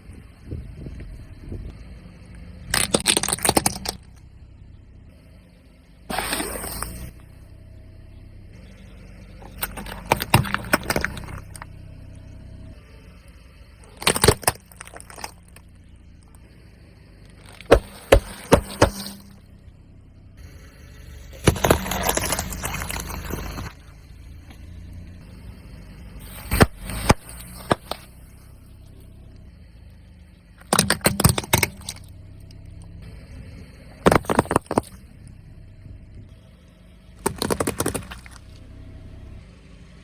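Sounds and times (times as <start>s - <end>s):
car engine running: 0.0s - 40.0s
tyre crushing objects: 2.7s - 4.0s, 9.4s - 11.6s, 14.0s - 15.6s, 17.3s - 19.4s, 21.4s - 23.8s, 26.2s - 28.1s, 30.6s - 32.1s, 34.0s - 35.0s, 37.2s - 38.4s.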